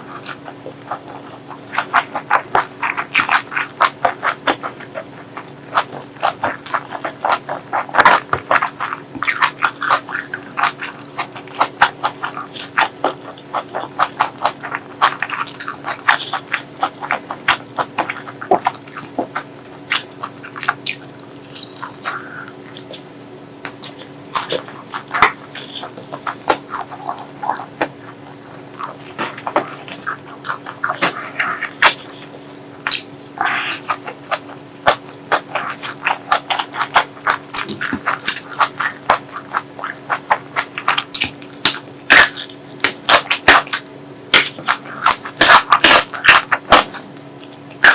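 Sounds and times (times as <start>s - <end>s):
chewing and lip-smacking: 0.0s - 47.9s.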